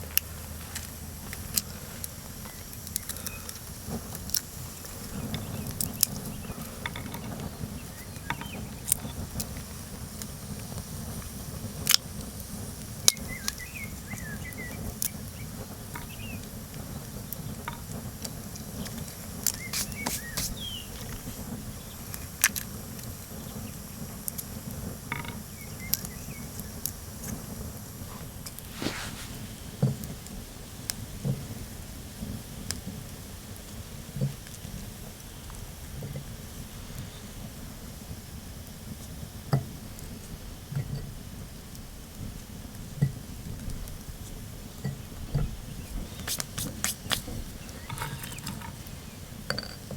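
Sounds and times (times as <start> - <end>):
wood fire crackling and popping: 0.0 - 49.9
bird chirps: 19.5 - 21.0.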